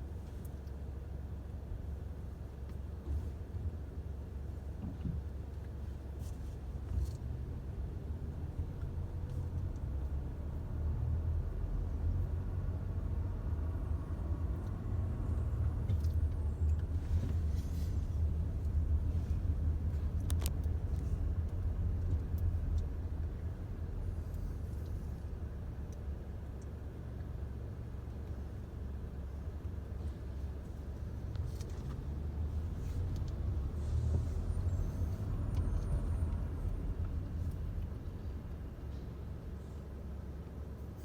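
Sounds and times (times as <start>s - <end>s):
vehicle engine rumbling: 0.0s - 41.0s.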